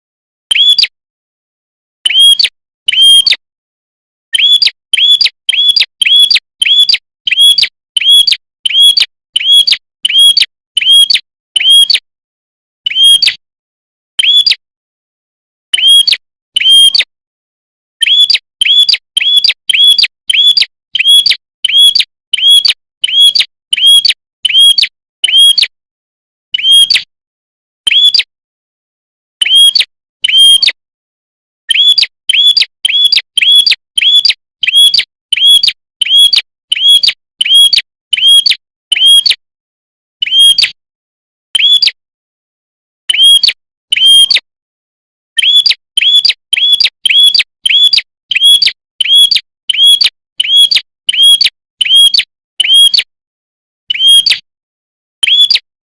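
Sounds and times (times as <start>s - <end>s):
bird chirping sharply: 0.5s - 1.0s, 4.3s - 12.0s, 14.2s - 14.6s, 18.0s - 25.7s, 31.7s - 39.3s, 40.2s - 40.7s, 41.6s - 42.0s, 43.1s - 44.4s, 45.4s - 53.0s, 53.9s - 54.4s, 55.2s - 55.6s.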